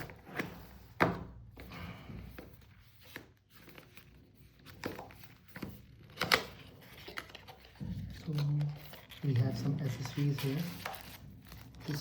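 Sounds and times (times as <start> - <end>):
cardboard packaging rustling: 2.5 - 12.0.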